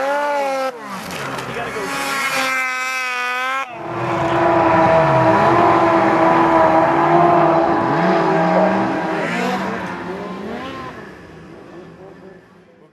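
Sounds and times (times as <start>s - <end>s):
snowmobile engine revving: 0.0s - 12.7s
snowmobile engine high note: 1.8s - 12.4s.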